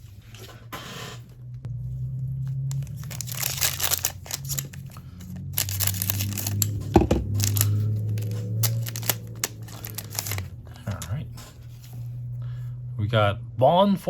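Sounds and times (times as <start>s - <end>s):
foil wrapper tearing and crinkling: 2.7s - 10.5s.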